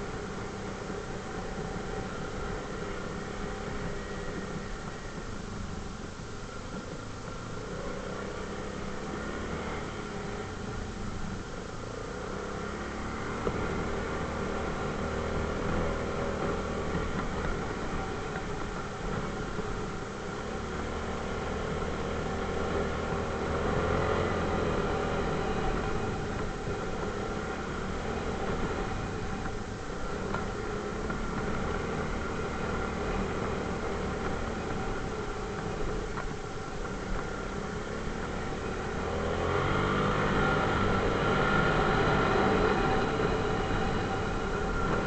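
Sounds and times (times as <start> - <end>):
atv engine running: 0.0 - 45.0.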